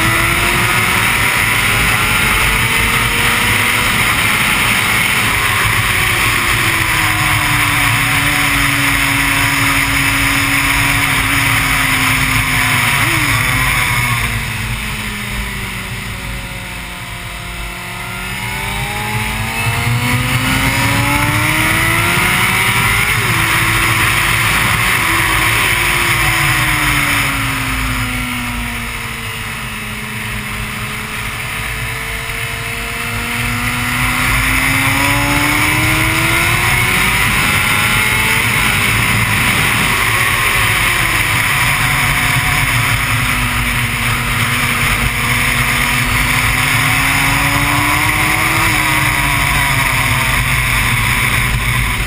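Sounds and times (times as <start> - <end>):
motorcycle engine revving: 0.0 - 52.0
steady rush of wind noise: 0.0 - 52.0.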